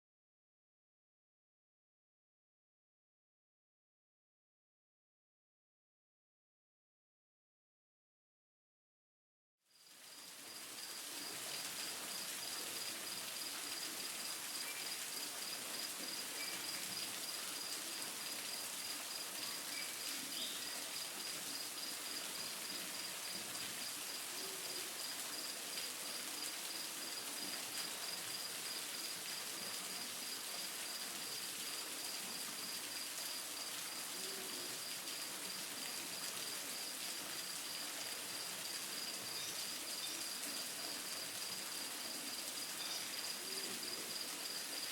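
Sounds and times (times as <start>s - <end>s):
insect chirping: 14.6s - 22.5s, 38.6s - 41.6s, 42.8s - 44.9s
faint bird chirps: 42.8s - 43.6s.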